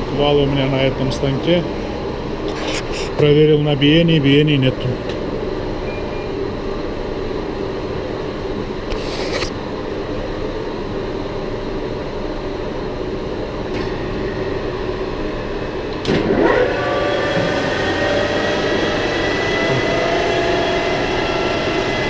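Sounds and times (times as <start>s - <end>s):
lathe whine: 5.3s - 22.0s
metal lathe humming: 16.3s - 22.0s.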